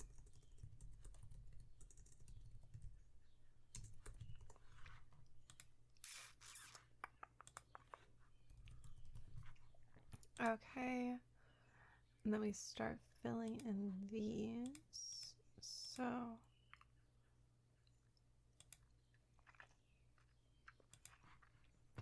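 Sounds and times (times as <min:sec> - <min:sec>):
keyboard typing and clicking: 0:00.0 - 0:10.6, 0:13.4 - 0:15.3, 0:18.6 - 0:18.9
low steady hum: 0:07.4 - 0:22.0.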